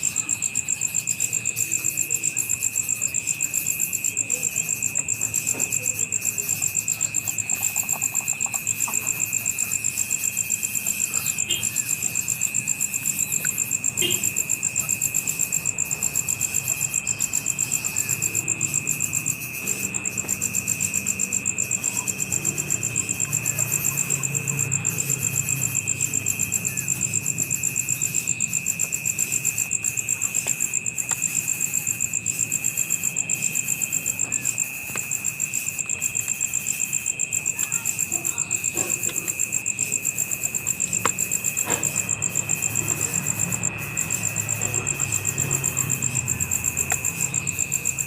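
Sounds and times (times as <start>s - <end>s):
insects trilling: 0.0s - 48.0s.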